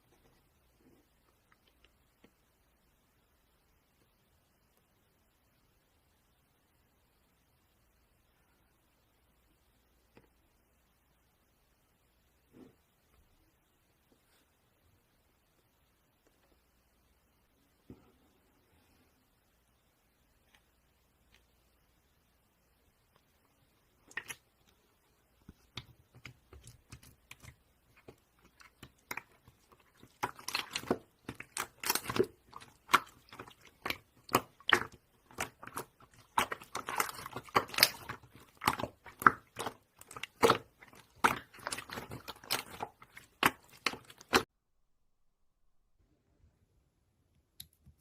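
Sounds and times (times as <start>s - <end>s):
crunching and crackling clicks: 25.5s - 44.5s.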